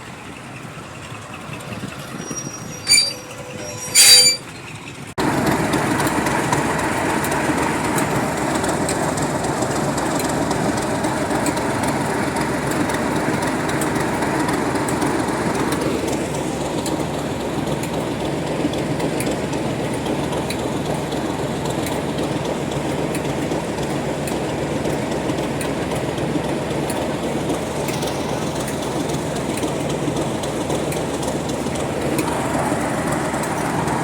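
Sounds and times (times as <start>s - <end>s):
train wheels rumbling on rail: 0.0s - 34.0s
faint clicks of rail: 17.8s - 18.1s.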